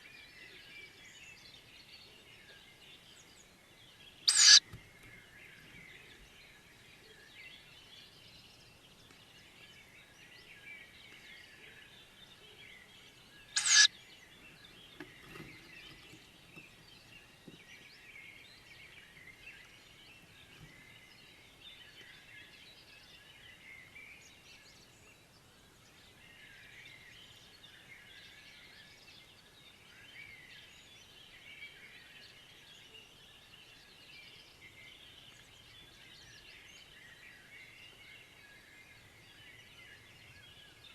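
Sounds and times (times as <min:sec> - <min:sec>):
small birds twittering: 0:00.0 - 0:40.9
raspy owl call: 0:04.3 - 0:04.6, 0:13.6 - 0:13.9.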